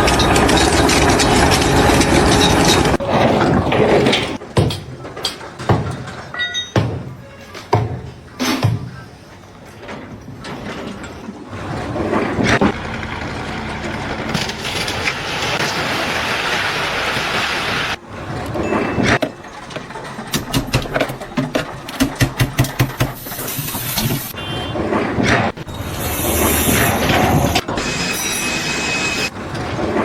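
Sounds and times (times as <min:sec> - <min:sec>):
machine engine running: 0:00.0 - 0:03.5, 0:11.6 - 0:24.4
sharp knocks: 0:20.3 - 0:23.3.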